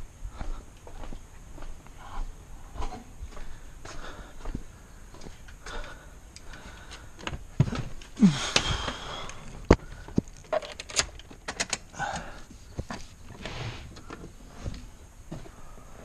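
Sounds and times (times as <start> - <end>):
creaking sliding sound: 12.9 - 14.9.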